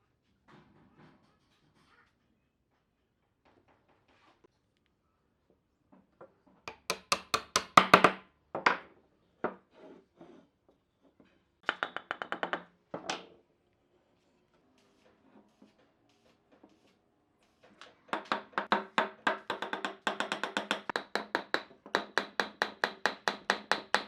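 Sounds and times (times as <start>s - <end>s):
sharp knocks on wood: 18.2s - 24.0s.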